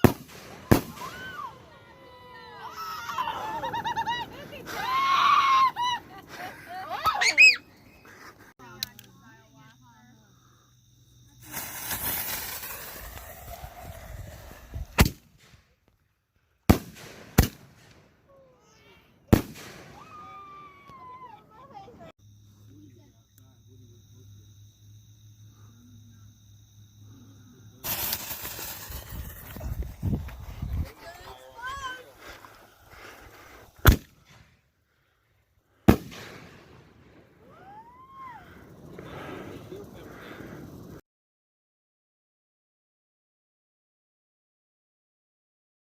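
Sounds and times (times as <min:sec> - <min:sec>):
fireworks bangs: 0:00.0 - 0:06.4, 0:11.4 - 0:15.8, 0:16.7 - 0:18.7, 0:19.3 - 0:21.3, 0:27.8 - 0:34.5, 0:35.8 - 0:38.0
fireworks hissing and crackling: 0:00.0 - 0:08.8, 0:11.1 - 0:16.0, 0:16.6 - 0:22.1, 0:27.6 - 0:34.8, 0:35.4 - 0:41.0.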